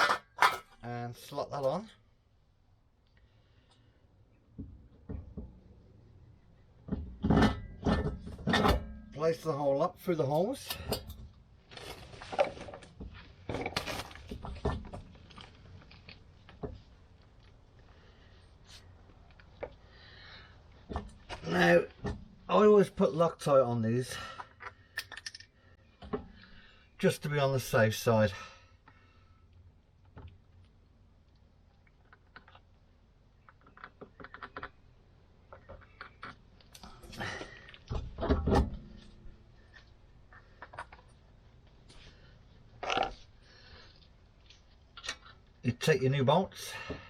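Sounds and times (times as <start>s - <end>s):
metal parts scraping and clinking: 0.0s - 0.8s
small metal parts clicking: 24.6s - 25.5s.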